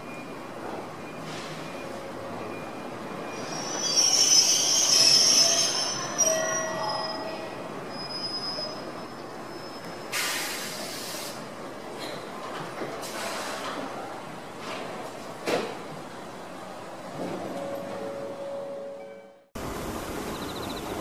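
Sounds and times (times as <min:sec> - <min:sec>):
train brakes squealing: 0:01.0 - 0:11.4
short burst of hiss: 0:10.1 - 0:11.4.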